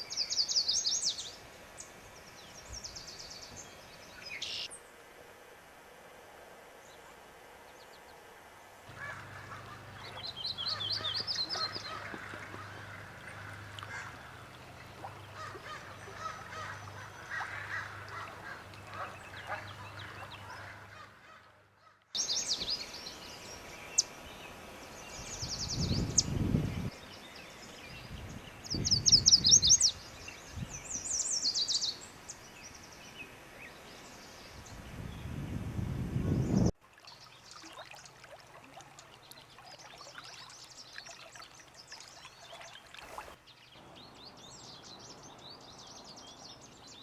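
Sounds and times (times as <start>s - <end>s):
birds trilling: 8.9s - 21.4s.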